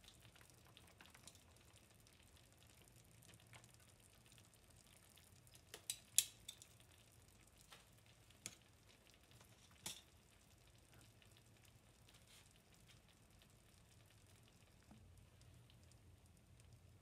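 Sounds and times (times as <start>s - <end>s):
vegetables sizzling in a pan: 5.4s - 7.0s, 7.6s - 11.2s
sharp pops from pan: 5.7s - 6.8s, 7.7s - 8.7s, 9.3s - 10.2s.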